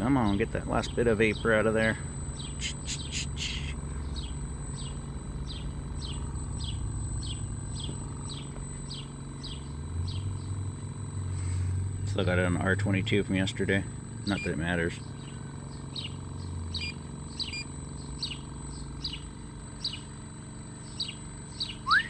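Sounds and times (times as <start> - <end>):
machine humming: 0.0 - 22.0
bird chirping: 2.3 - 10.6, 14.4 - 20.1, 20.8 - 22.0.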